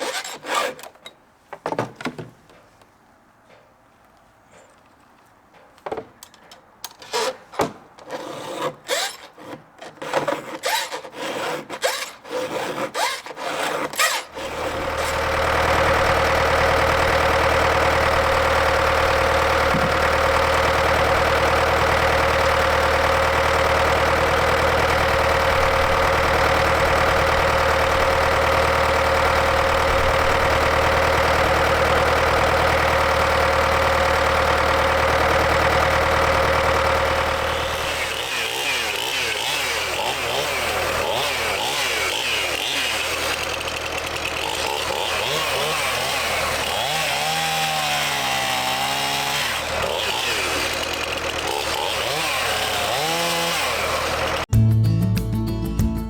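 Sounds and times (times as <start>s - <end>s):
unsteady wavering engine: 14.4s - 54.5s
engine idling: 14.5s - 38.2s, 43.1s - 44.8s, 49.6s - 51.6s, 53.8s - 54.5s.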